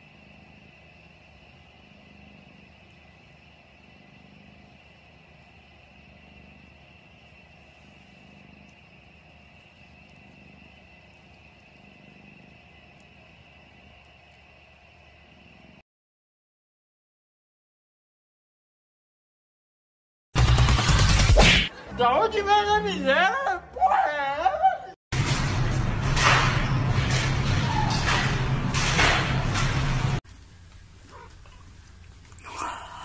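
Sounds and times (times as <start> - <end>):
cat purring: 0.0 - 15.8, 30.3 - 32.8.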